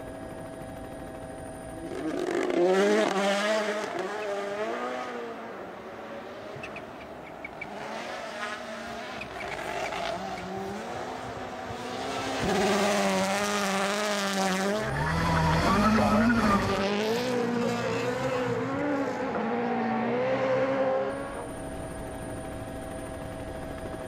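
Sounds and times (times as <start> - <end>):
rally car engine revving past: 7.7 - 21.3.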